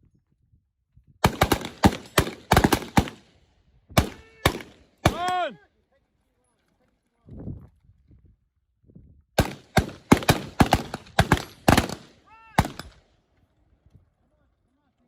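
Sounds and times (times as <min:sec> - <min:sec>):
gunshots: 0:01.2 - 0:03.3, 0:04.0 - 0:05.5, 0:09.4 - 0:13.0.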